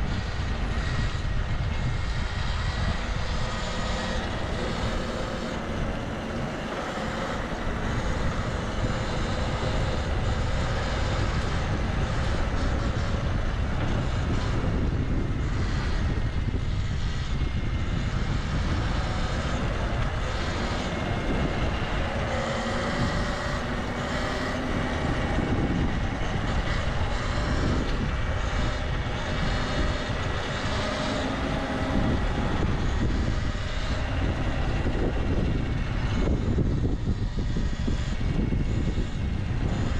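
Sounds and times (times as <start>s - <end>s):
passing vehicle engines: 0.0s - 39.9s
traffic noise: 0.0s - 39.9s
wind rush: 0.0s - 39.9s.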